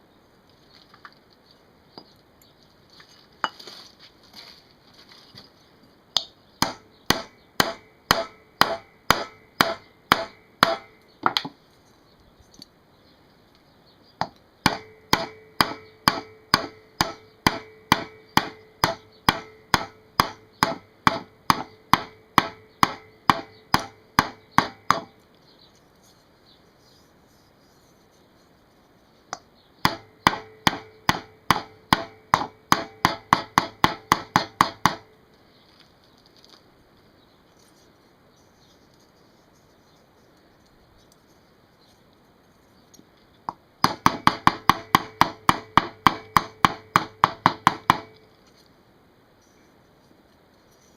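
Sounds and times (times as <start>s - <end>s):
hammer blows on metal tank: 6.6s - 11.0s, 14.6s - 25.1s, 29.8s - 35.1s, 43.8s - 48.2s.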